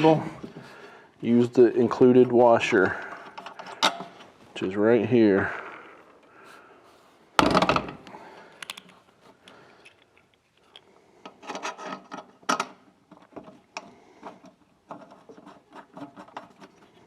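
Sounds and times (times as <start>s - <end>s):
metal parts clunking and clicking: 2.8s - 4.3s, 7.4s - 17.0s.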